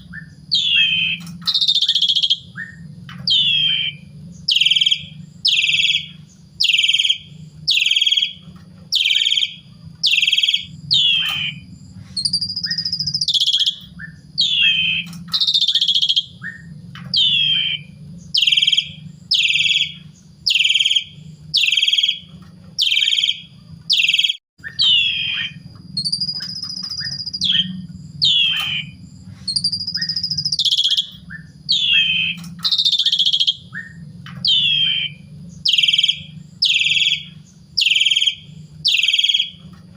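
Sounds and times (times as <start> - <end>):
low steady hum: 0.0 - 39.9
starling singing: 0.0 - 39.9.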